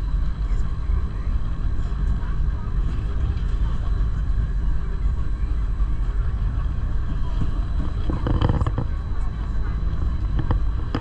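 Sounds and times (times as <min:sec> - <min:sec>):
train rumbling: 0:06.1 - 0:11.0.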